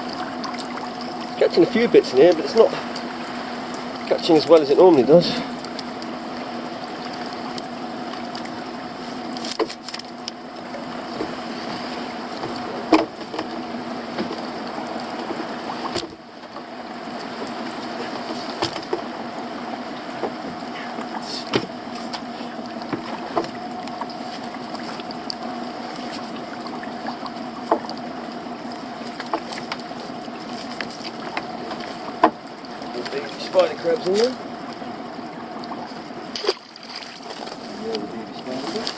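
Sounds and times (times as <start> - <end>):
outboard motor idling: 0.0 - 38.9
sharp knocks on boat: 9.4 - 10.0, 12.4 - 14.5, 15.2 - 16.7, 18.2 - 19.1, 20.2 - 22.3, 22.9 - 23.6, 27.6 - 27.9, 31.3 - 32.4.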